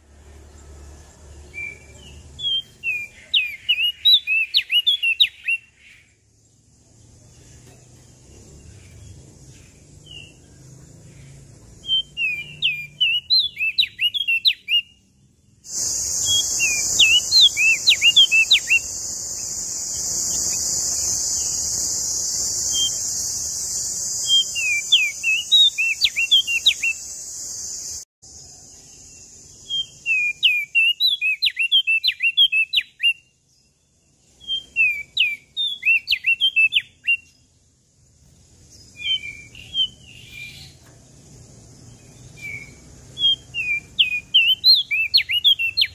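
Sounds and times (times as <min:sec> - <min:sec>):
warbler singing high chirps: 0:00.0 - 0:45.9
high-pitched hiss: 0:15.6 - 0:30.6.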